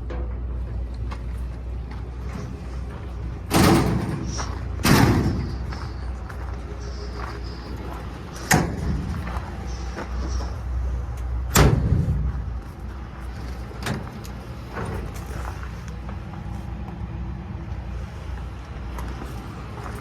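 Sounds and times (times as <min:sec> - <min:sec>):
truck engine hum: 0:00.0 - 0:20.0
truck doors slamming: 0:03.4 - 0:06.0, 0:08.3 - 0:09.8, 0:11.4 - 0:12.6.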